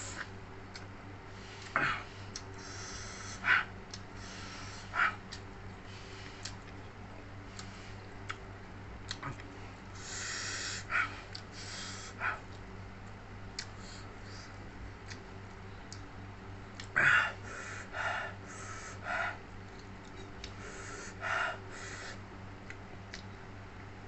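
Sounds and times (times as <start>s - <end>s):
low steady hum: 0.0s - 24.0s
wet mouth eating sounds: 9.1s - 9.5s.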